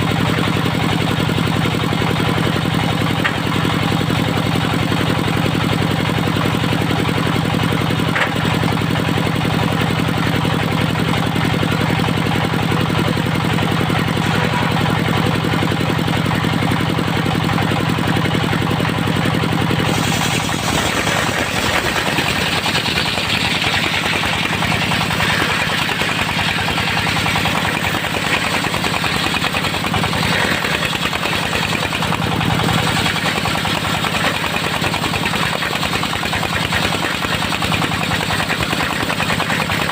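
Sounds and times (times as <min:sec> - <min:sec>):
sawmill engine running: 0:00.0 - 0:39.9
saw blade cutting wood: 0:14.2 - 0:15.0, 0:19.8 - 0:35.2.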